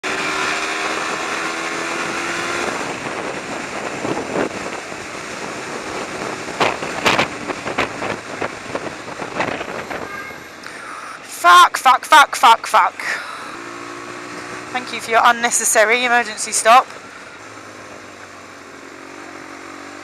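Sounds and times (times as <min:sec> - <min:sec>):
motorcycle engine: 0:00.0 - 0:11.0, 0:12.9 - 0:20.0
wind rushing over microphone: 0:00.9 - 0:10.4.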